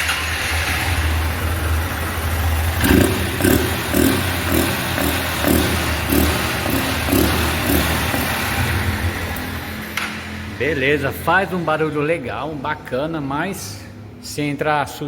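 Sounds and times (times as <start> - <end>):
motorcycle engine revving: 0.0 - 11.7.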